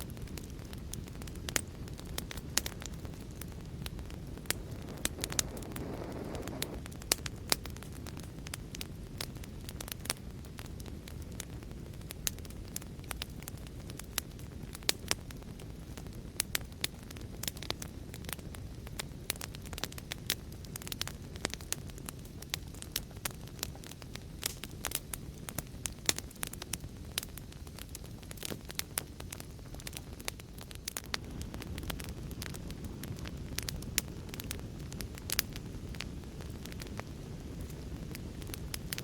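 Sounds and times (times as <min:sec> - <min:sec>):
fire crackling and popping: 0:00.0 - 0:39.0
low fire rumble: 0:00.0 - 0:39.0
brief hiss: 0:04.5 - 0:06.8.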